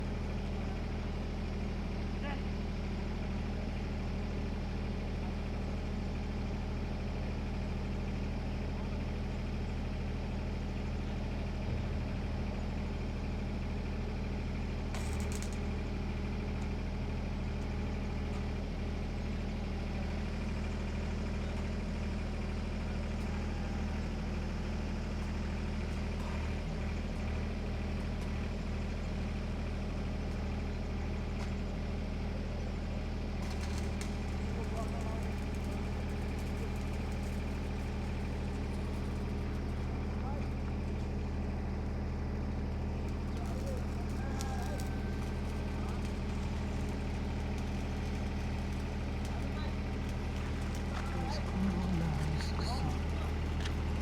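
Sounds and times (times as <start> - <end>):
heavy machinery engine humming: 0.0 - 54.0.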